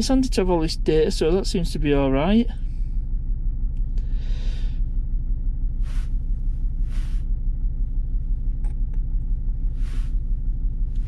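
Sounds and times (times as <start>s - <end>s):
diesel engine idling: 0.0s - 11.0s
short hissing: 5.8s - 6.2s.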